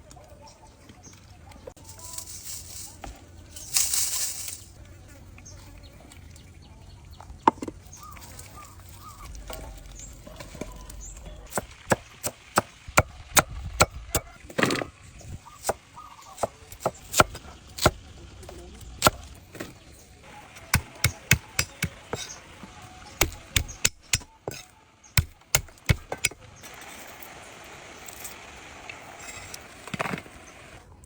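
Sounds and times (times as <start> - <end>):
cleaver chopping on wooden board: 11.5 - 14.8, 16.4 - 18.0, 20.7 - 22.4, 23.2 - 24.6, 25.2 - 26.4.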